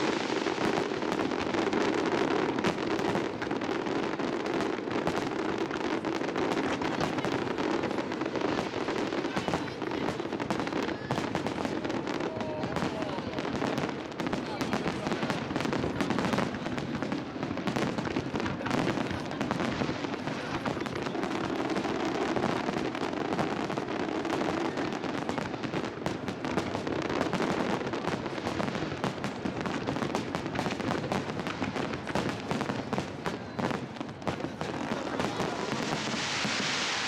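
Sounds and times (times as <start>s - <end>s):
fireworks crackling: 0.0s - 37.0s.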